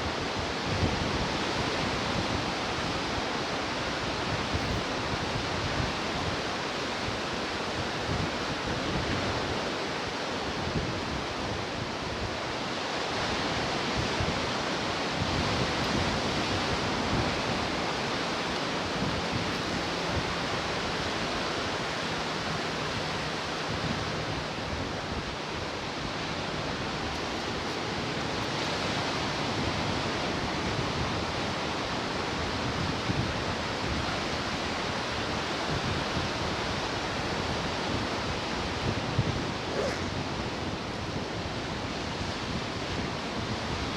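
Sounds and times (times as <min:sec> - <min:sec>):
ocean surf washing ashore: 0:00.0 - 0:43.9.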